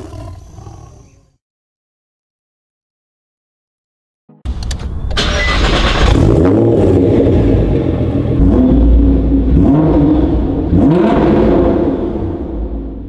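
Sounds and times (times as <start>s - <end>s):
car engine revving: 5.2s - 13.0s.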